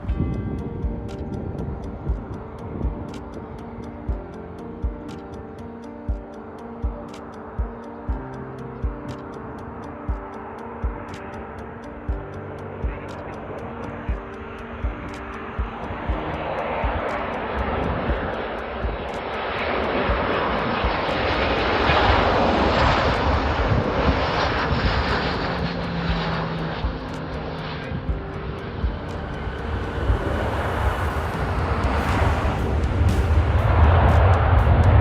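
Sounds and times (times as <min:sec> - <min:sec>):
jet airliner landing: 0:13.0 - 0:35.0.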